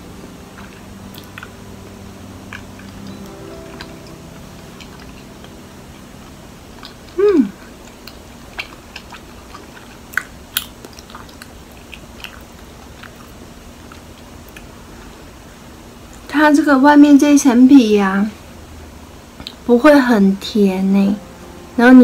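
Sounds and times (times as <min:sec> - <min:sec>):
wet chewing smacks and clicks: 0:07.8 - 0:14.7.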